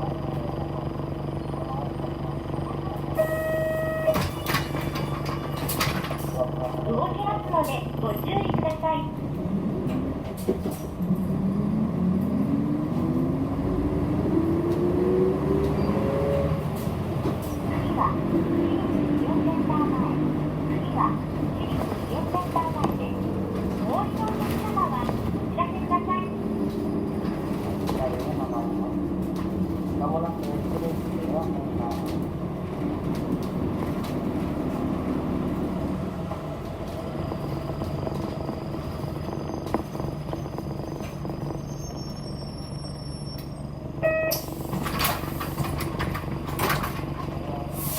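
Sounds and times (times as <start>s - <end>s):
bus engine rumble: 0.0s - 47.9s
road noise: 0.0s - 47.9s
rising drivetrain whine: 9.2s - 27.9s, 32.1s - 44.0s.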